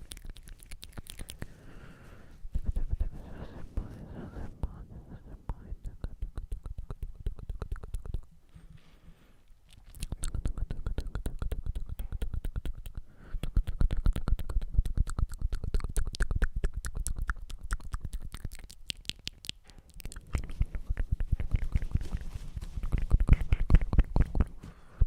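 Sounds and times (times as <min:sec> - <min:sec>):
wet tongue and lip clicks: 0:00.0 - 0:01.9, 0:05.4 - 0:08.4, 0:09.5 - 0:24.6.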